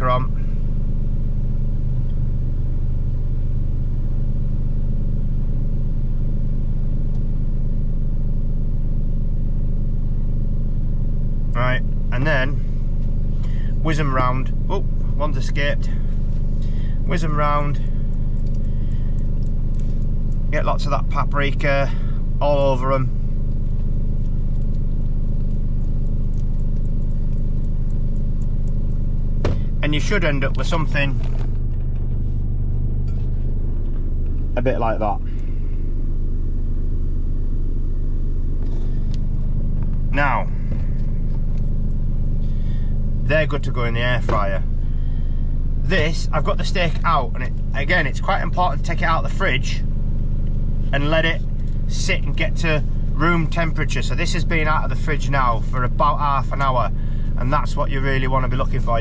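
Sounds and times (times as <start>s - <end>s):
diesel engine idling: 0.0s - 59.0s
low mechanical hum: 0.0s - 59.0s
potatoes ticking in container: 23.4s - 29.1s.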